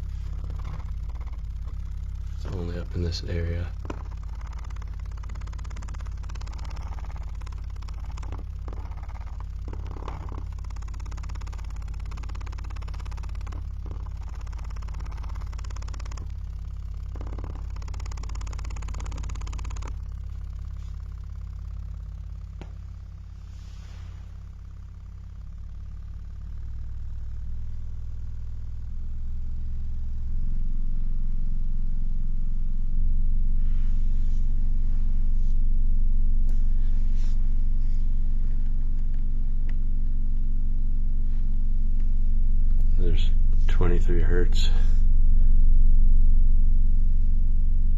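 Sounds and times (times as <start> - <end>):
faint clicks: 0.0 - 3.0, 3.7 - 22.9
subwoofer low test tone: 0.0 - 47.9.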